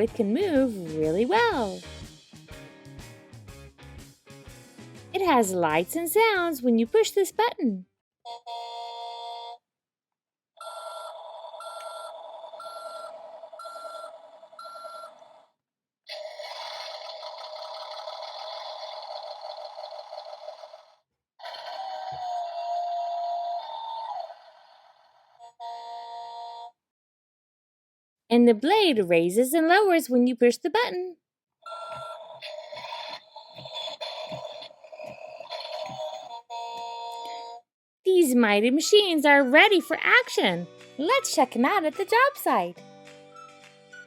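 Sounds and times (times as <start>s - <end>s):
toy beeps over a buzz: 10.6s - 15.3s, 16.1s - 26.7s, 31.7s - 37.6s.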